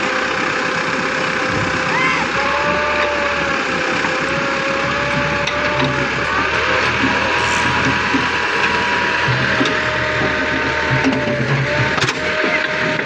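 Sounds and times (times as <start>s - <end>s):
tractor engine running: 0.0s - 13.0s
thin wavering whine: 1.9s - 13.0s.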